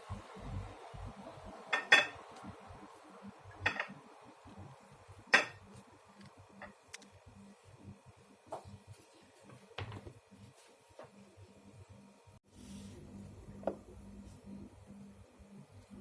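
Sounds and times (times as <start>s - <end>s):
dishes and cutlery clinking: 1.7s - 2.2s, 3.6s - 4.0s, 5.3s - 5.6s.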